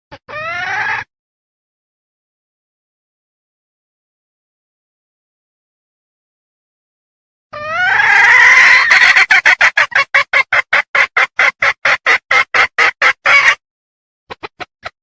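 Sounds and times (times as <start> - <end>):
hen clucking: 7.6 - 13.6, 14.3 - 15.0.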